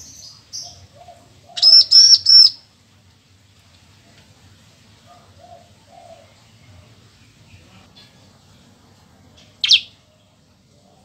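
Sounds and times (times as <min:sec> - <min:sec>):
faint low bird calls: 0:00.0 - 0:02.6.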